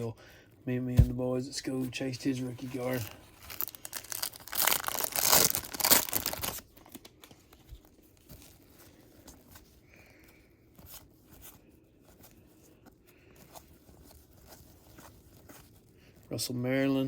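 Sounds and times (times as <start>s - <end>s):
cards rustling and ticking: 1.7s - 16.4s
card pack wrapper tearing: 2.6s - 7.3s.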